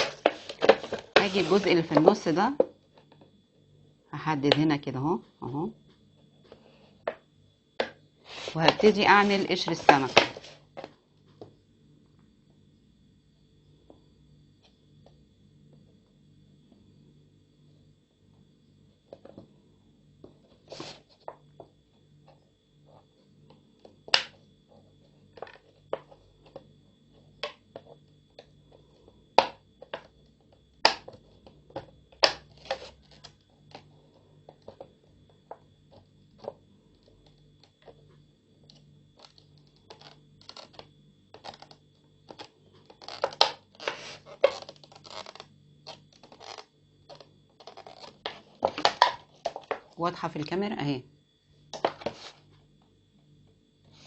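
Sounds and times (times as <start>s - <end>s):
plastic bottle clicking and crackling: 39.2s - 49.9s.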